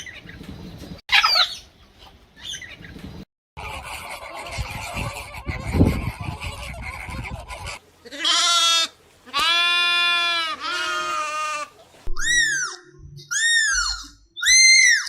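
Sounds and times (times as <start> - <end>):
drawn-out animal calls: 3.6 - 15.0.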